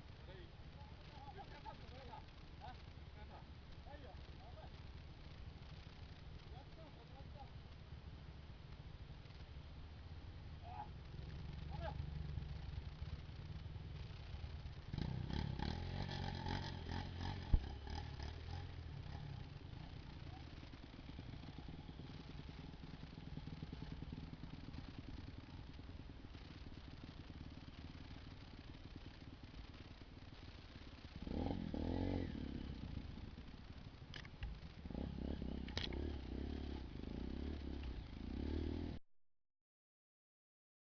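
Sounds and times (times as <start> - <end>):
dirt bike engine revving: 11.0 - 25.8, 30.9 - 33.8, 34.5 - 39.0.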